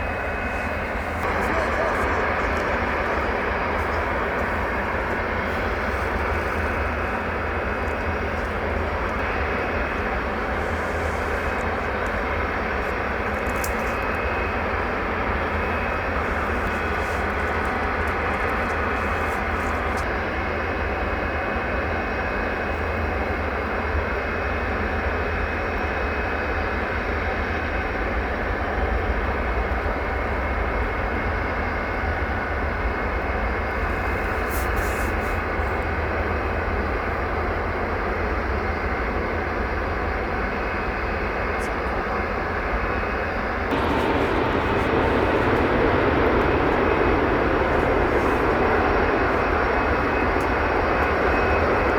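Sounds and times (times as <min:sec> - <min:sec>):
faint high whine: 0:00.0 - 0:20.0, 0:43.7 - 0:51.9
jet engines rumbling: 0:00.0 - 0:22.2, 0:40.4 - 0:51.9.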